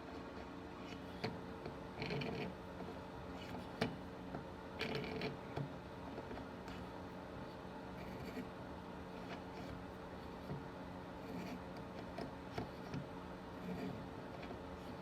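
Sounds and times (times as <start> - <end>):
tap scraping while cutting threads: 11.3 - 14.6.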